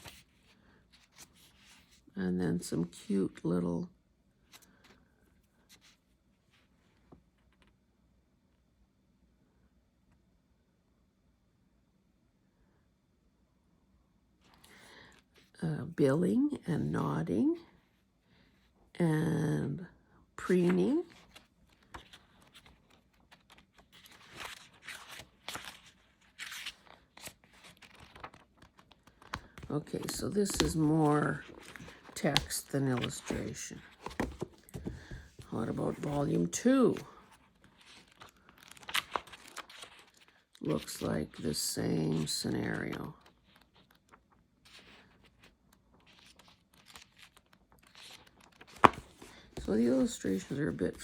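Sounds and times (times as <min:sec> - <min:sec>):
paper rustling: 0:00.0 - 0:02.0, 0:20.7 - 0:51.0
book pages turning: 0:00.0 - 0:02.1, 0:20.5 - 0:51.0.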